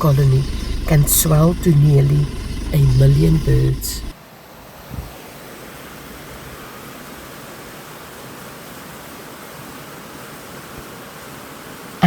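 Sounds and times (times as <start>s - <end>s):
steady hiss: 0.0s - 4.2s.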